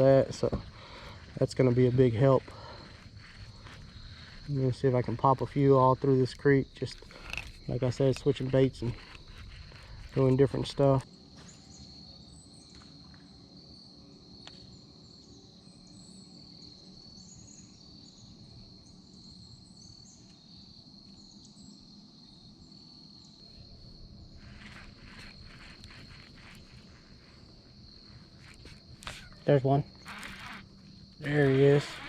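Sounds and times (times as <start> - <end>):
high-pitched insect chorus: 0.0 - 32.0
small high chirps: 24.3 - 32.0.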